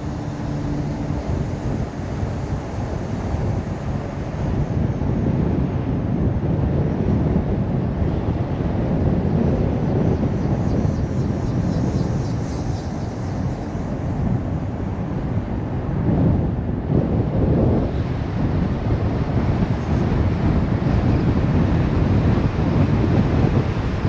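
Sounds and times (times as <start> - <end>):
car driving rumble: 0.0 - 6.4.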